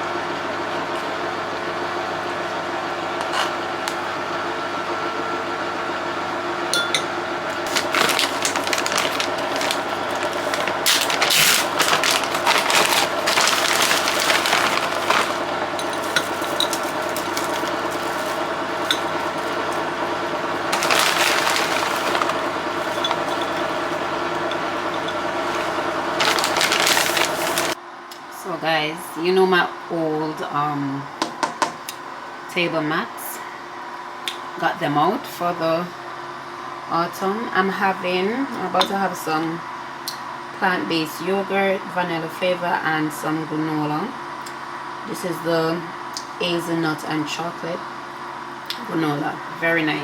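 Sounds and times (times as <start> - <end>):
steady mechanical hum: 0.0 - 50.0
rapid clicking and clattering: 7.6 - 20.0, 20.6 - 27.8.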